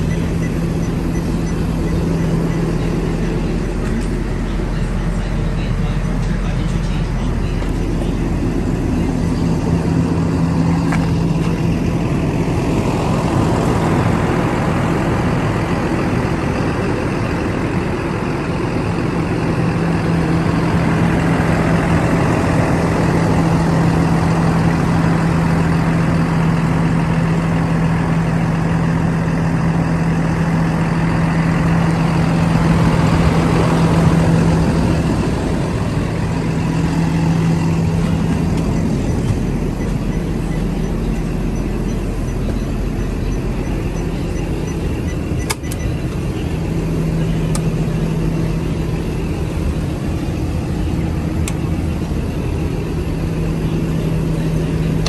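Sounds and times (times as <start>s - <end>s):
bus engine idling: 0.0s - 55.0s.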